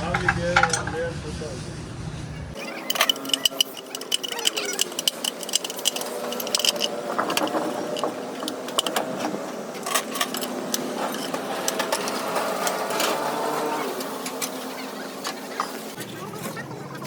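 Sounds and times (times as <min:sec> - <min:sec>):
metallic clinks and taps: 0:02.8 - 0:09.0.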